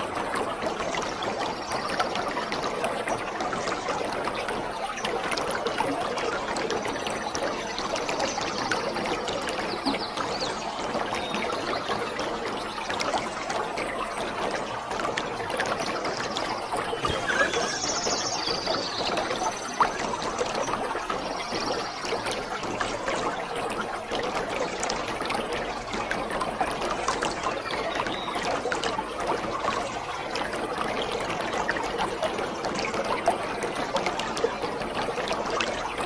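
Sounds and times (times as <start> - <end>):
waterfall rushing: 17.0 - 18.1.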